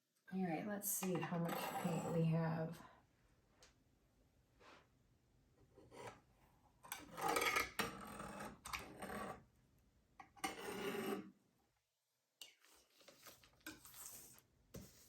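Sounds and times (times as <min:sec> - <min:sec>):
scraping painting supplies: 0:05.8 - 0:09.5, 0:10.4 - 0:11.3, 0:12.6 - 0:15.0.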